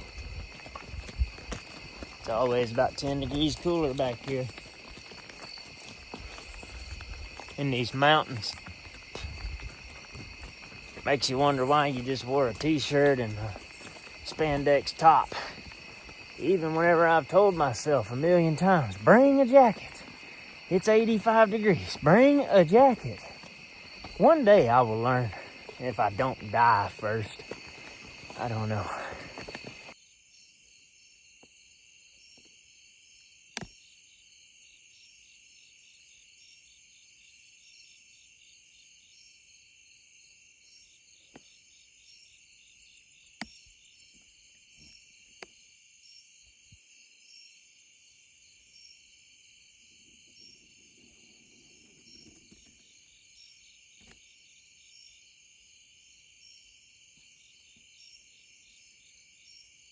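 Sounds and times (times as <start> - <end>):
crickets and insects trilling: 0.0 - 59.9.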